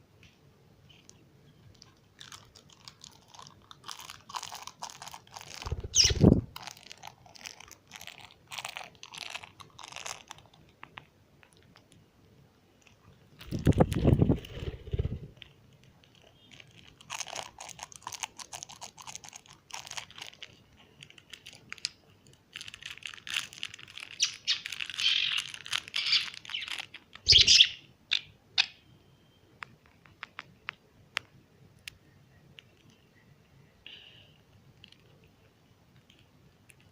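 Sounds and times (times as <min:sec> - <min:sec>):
small bird chirping: 0:05.6 - 0:06.4, 0:24.0 - 0:29.5.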